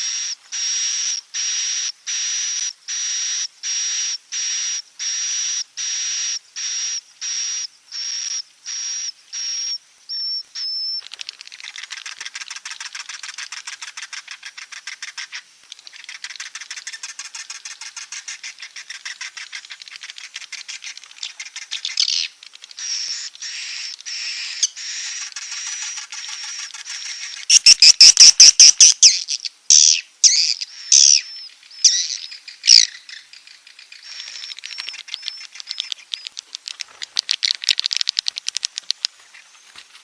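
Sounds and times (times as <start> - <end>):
rapid chittering twitter: 0.0 - 39.8
short high bird calls: 14.0 - 36.4.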